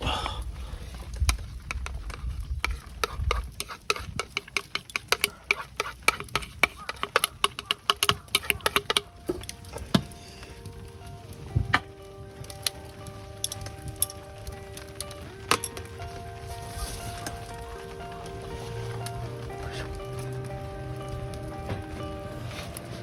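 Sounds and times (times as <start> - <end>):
cooking utensils clicking and tapping: 1.1 - 23.0
soft background music: 8.5 - 23.0.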